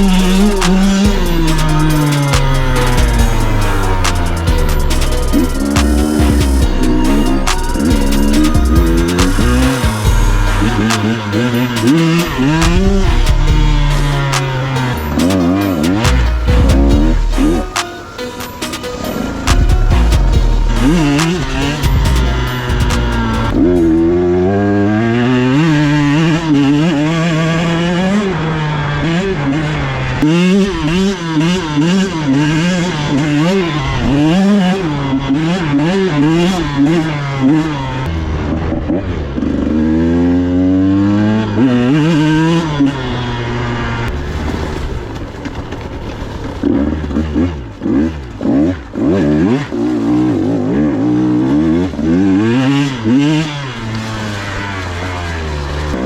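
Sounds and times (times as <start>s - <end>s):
dirt bike engine revving: 0.0s - 45.2s, 46.2s - 56.0s.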